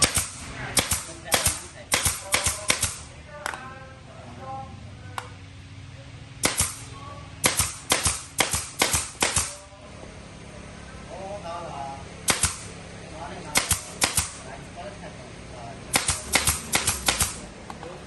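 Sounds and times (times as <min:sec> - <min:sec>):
air tool sharp cracks: 0:00.0 - 0:03.1, 0:06.4 - 0:09.6, 0:12.2 - 0:12.8, 0:13.5 - 0:14.4, 0:15.9 - 0:17.5.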